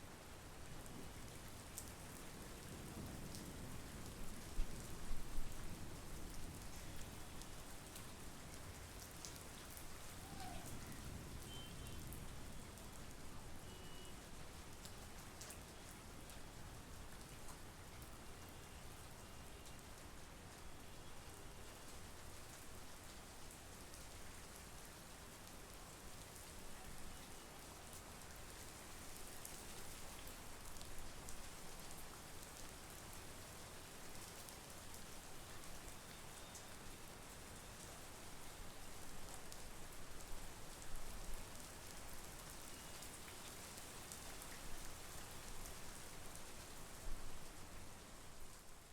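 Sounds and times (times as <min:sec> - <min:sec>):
heavy rain falling: 0:00.8 - 0:13.6.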